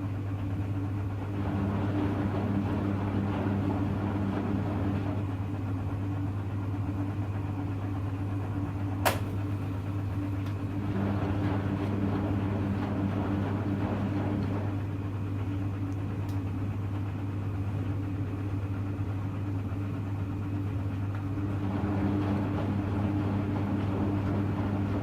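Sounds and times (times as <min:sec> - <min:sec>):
washing machine motor hum: 0:00.0 - 0:25.0
washing machine click: 0:09.0 - 0:09.5.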